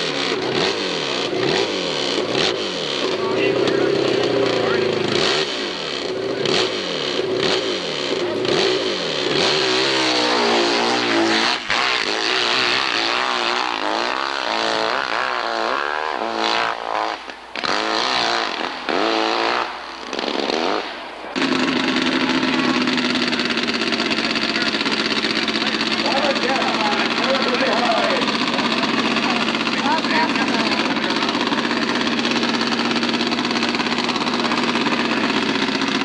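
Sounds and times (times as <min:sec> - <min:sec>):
motorcycle engine revving: 0:00.0 - 0:36.0
steady engine drone: 0:00.0 - 0:36.0.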